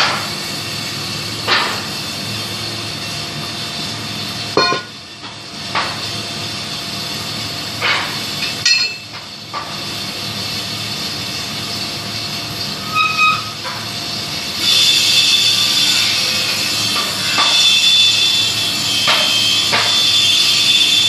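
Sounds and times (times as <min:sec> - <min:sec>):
sharp metallic clanks: 0:04.6 - 0:05.9
metal on metal squeals: 0:12.7 - 0:13.8.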